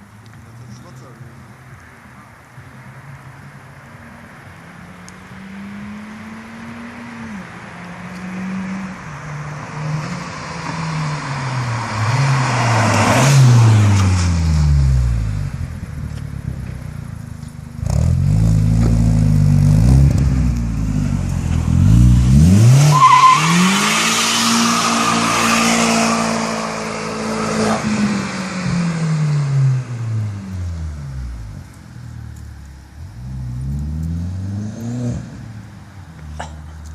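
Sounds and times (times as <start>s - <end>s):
car engine revving: 4.7s - 31.7s.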